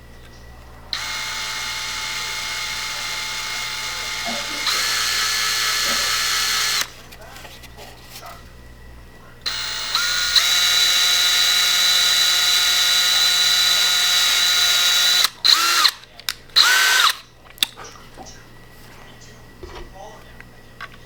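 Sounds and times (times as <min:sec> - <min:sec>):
electric drill whining: 0:00.9 - 0:07.1, 0:09.5 - 0:17.2.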